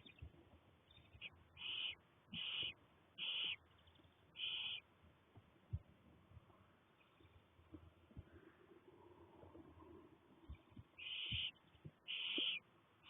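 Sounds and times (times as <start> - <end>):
owl chicks hissing calls: 1.2 - 3.6, 4.4 - 4.8, 11.0 - 12.7.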